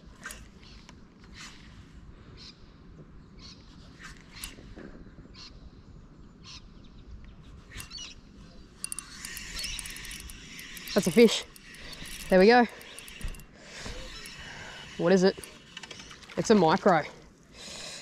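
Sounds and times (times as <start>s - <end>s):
birds calling: 6.4s - 17.1s.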